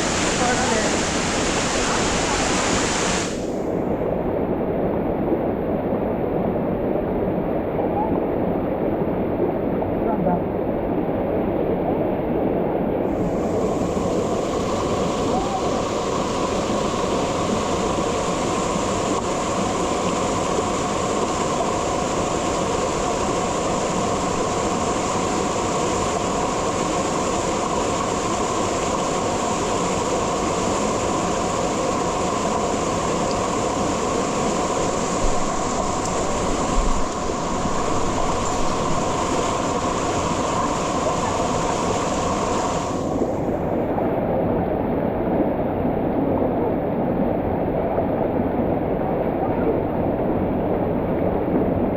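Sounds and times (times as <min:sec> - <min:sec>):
waterfall roaring: 0:00.0 - 0:03.7, 0:13.1 - 0:43.9.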